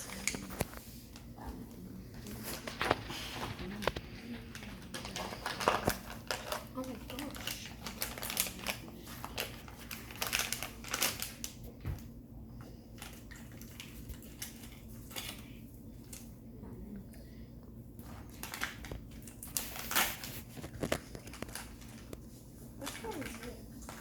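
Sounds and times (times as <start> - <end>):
toy packaging crinkling and tearing: 2.4 - 11.6, 18.3 - 22.2.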